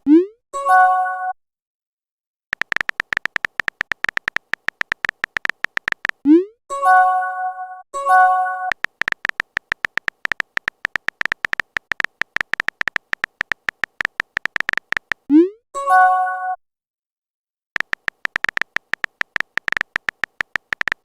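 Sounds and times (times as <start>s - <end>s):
keyboard tapping clicks: 2.5s - 6.2s, 8.7s - 15.3s, 17.8s - 21.0s.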